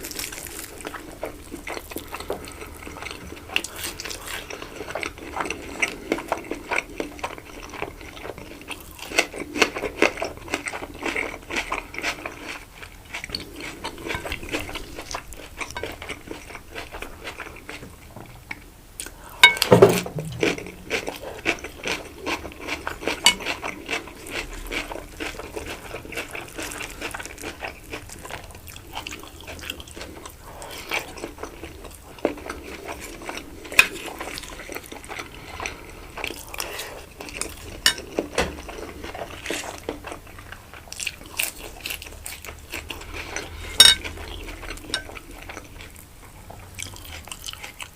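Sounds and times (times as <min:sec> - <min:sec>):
close chewing and mouth sounds: 0:00.0 - 0:19.6, 0:20.2 - 0:47.9
louder thump: 0:19.7 - 0:20.6.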